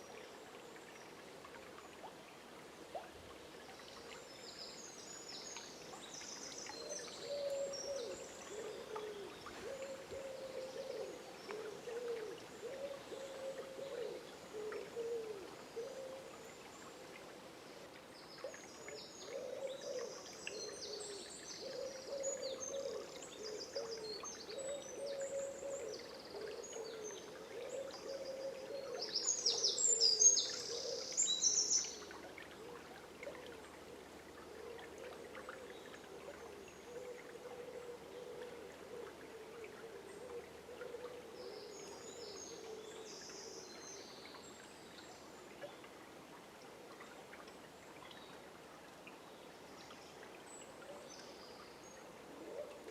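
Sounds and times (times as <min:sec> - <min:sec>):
river flowing: 0:00.0 - 0:52.9
songbirds singing: 0:18.2 - 0:32.3.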